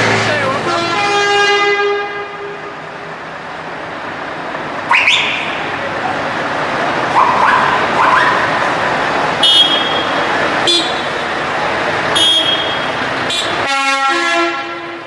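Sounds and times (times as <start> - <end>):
crowd noise: 0.0 - 1.0, 2.7 - 13.7
din of engines: 0.0 - 15.0
truck air horn blast: 0.6 - 2.7, 9.4 - 11.2, 12.1 - 15.0.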